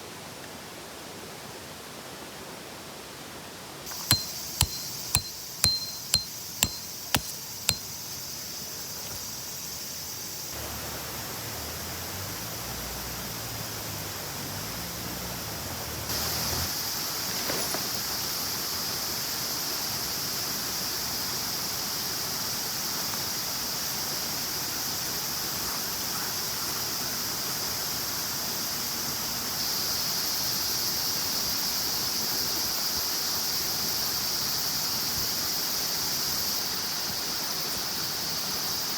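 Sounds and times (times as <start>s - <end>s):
sharp clinks: 3.9s - 7.9s.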